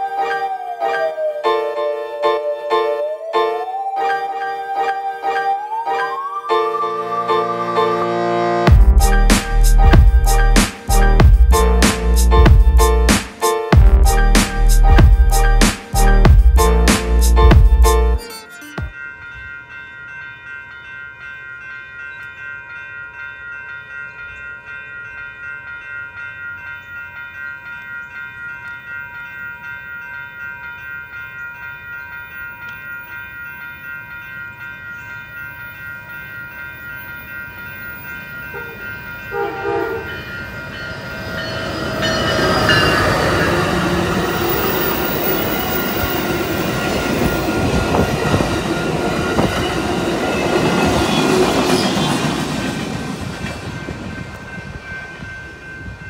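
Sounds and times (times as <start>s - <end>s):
train horn: 0.0s - 9.0s, 38.5s - 40.3s
passenger train passing: 0.0s - 22.5s, 23.1s - 56.0s
crossing warning bells ringing: 0.0s - 56.0s
train wheels clacking: 38.6s - 56.0s.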